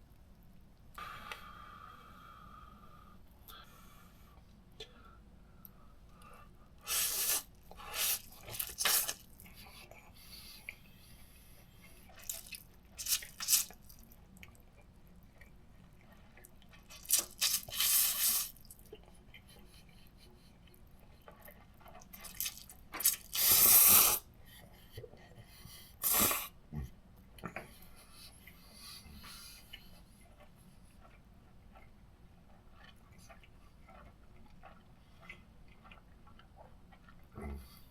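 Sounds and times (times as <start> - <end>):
noodles slurped: 6.8 - 9.8, 12.0 - 14.3, 16.0 - 19.0, 21.5 - 24.3.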